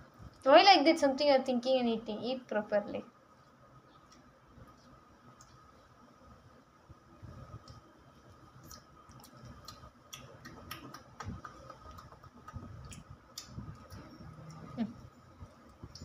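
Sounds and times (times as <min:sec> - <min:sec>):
child chewing rice: 0:03.4 - 0:06.0, 0:07.4 - 0:16.0.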